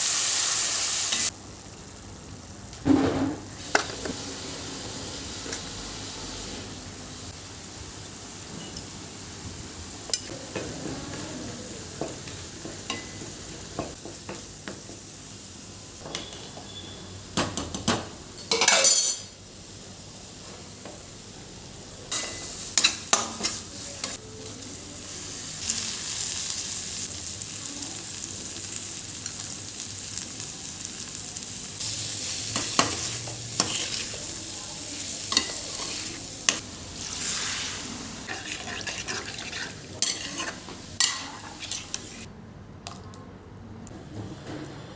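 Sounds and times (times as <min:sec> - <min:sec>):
frying sizzle: 0:00.0 - 0:42.3
utensils and pans clinking: 0:16.0 - 0:19.4, 0:38.2 - 0:42.3
spoon stirring and scraping pan: 0:22.1 - 0:24.2, 0:32.5 - 0:34.3, 0:35.2 - 0:42.3.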